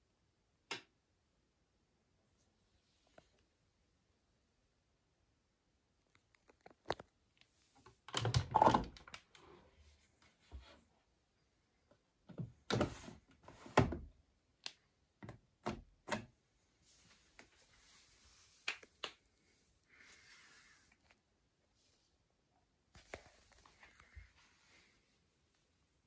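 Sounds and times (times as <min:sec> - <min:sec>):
faint hiss: 0:19.4 - 0:21.0.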